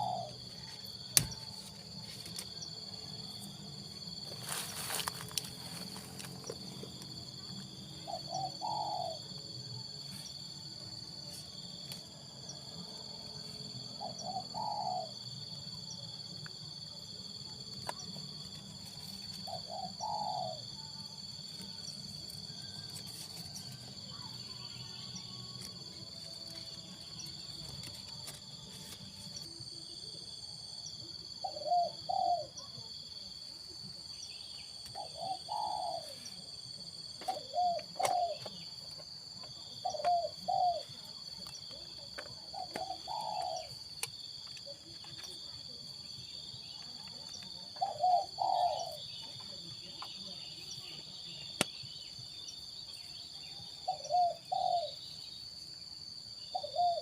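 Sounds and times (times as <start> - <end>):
dove cooing: 0.0 - 0.7, 8.0 - 9.4, 13.9 - 15.3, 19.1 - 21.8, 31.4 - 32.9, 34.9 - 36.5, 37.2 - 38.8, 39.5 - 43.8, 46.8 - 49.1, 53.7 - 55.1, 56.5 - 57.0
high-pitched insect drone: 0.0 - 57.0.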